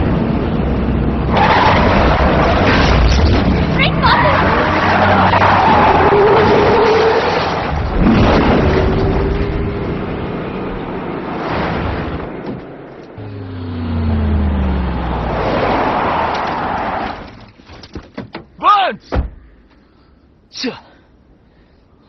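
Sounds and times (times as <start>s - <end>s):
vehicle engines speeding: 0.0s - 17.3s
road and wind noise: 0.0s - 20.5s.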